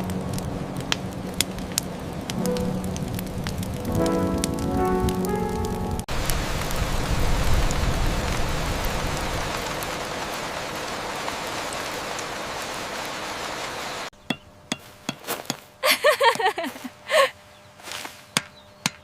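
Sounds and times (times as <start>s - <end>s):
heavy rain: 0.0s - 14.1s.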